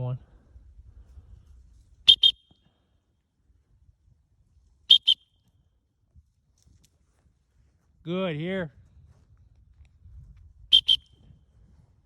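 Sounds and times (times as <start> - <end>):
shrill whistle toots: 2.1 - 2.6, 4.9 - 5.3, 10.7 - 11.2.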